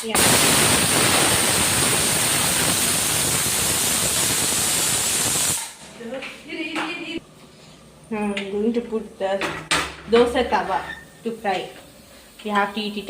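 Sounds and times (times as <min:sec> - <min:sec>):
pressure cooker whistle hissing: 0:00.0 - 0:05.8.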